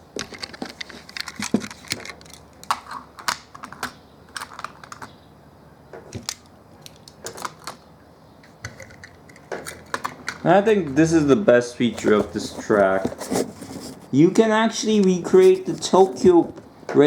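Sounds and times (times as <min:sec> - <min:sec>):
plastic toy parts clicking: 0:00.2 - 0:05.1, 0:06.2 - 0:07.8, 0:08.6 - 0:10.5.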